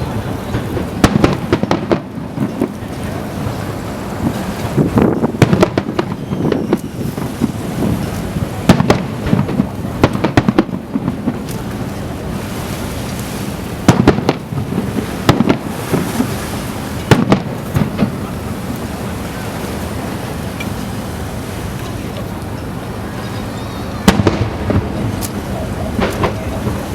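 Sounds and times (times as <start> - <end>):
fireworks bursting: 0.0 - 12.4, 13.5 - 18.9, 23.8 - 26.9.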